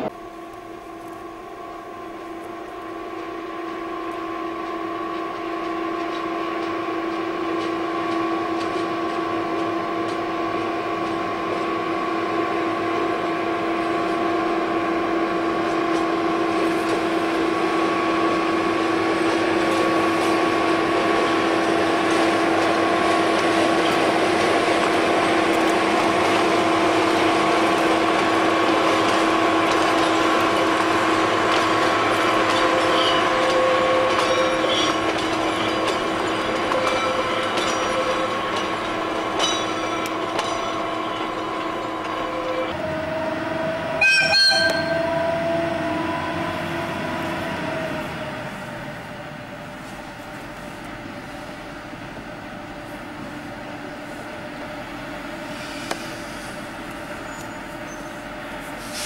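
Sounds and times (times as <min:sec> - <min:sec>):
diesel locomotive droning: 0:00.0 - 0:59.0
short high squeaks: 0:44.0 - 0:45.1, 0:57.2 - 0:58.2.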